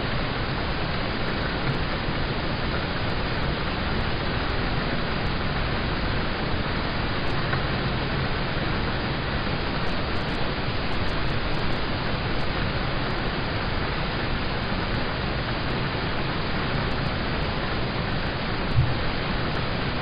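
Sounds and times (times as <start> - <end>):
rain on a car roof: 0.0 - 20.0
low thump: 18.7 - 19.1.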